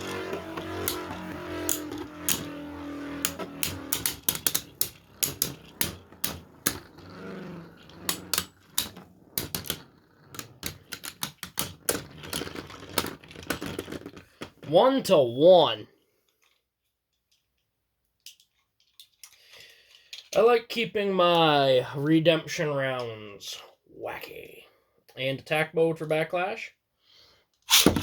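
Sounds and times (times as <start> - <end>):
spinning tops clashing: 0.0 - 13.2.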